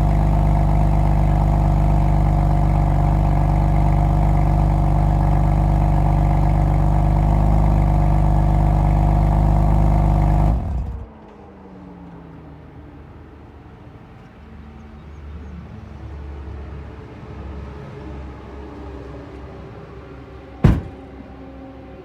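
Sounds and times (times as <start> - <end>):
car engine idling: 0.0 - 11.1, 20.6 - 21.1.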